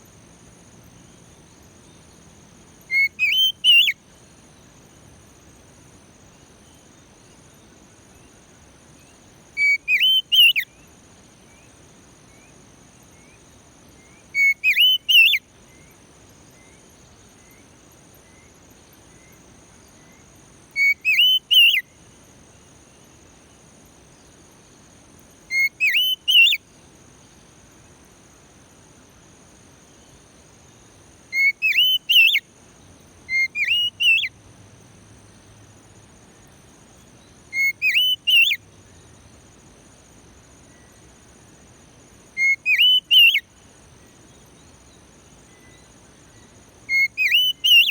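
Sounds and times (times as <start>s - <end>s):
bird whistling song: 2.9s - 4.0s, 9.6s - 10.8s, 14.0s - 15.9s, 20.8s - 21.8s, 25.5s - 26.6s, 31.3s - 32.4s, 33.3s - 34.3s, 37.5s - 38.6s, 42.4s - 43.5s, 46.4s - 47.9s.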